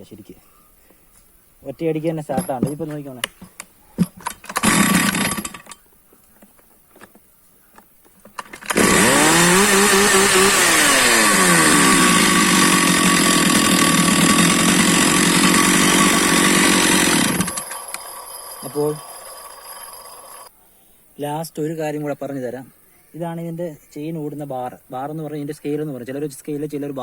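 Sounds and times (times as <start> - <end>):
chainsaw starting and running: 4.4 - 5.7, 8.4 - 20.5.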